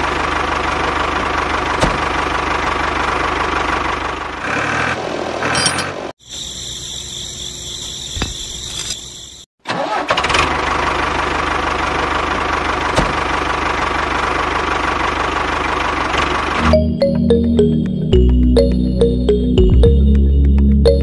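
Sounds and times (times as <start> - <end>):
diesel tractor engine idling: 0.0 - 4.8, 9.8 - 19.6.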